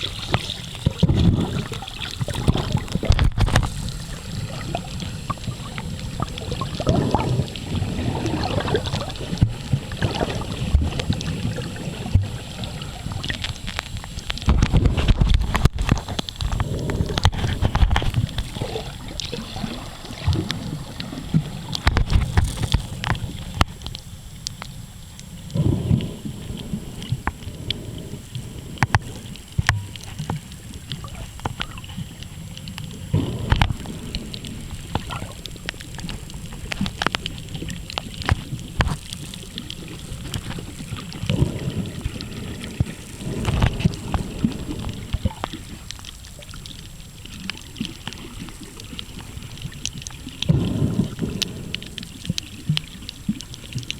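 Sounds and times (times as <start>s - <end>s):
low water surge: 0.0s - 24.4s
muffled underwater sloshing: 0.0s - 53.9s.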